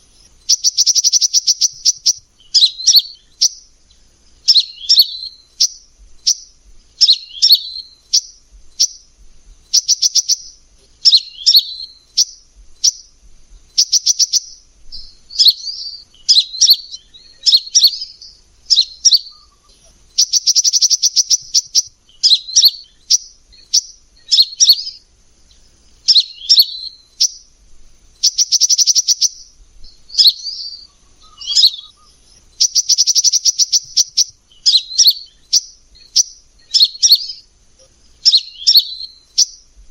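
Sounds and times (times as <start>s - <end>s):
bird rattling trill: 0.0s - 3.6s, 4.4s - 14.6s, 16.2s - 24.9s, 28.1s - 30.4s, 31.2s - 37.4s
bird chirping: 0.0s - 39.9s.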